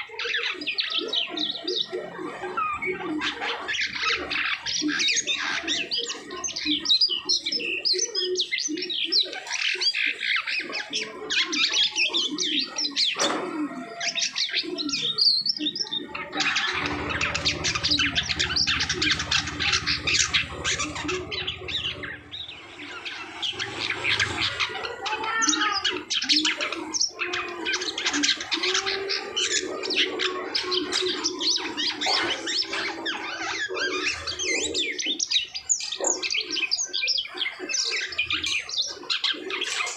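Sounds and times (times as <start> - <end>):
starling singing: 0.0 - 39.9
low hum: 16.4 - 24.8.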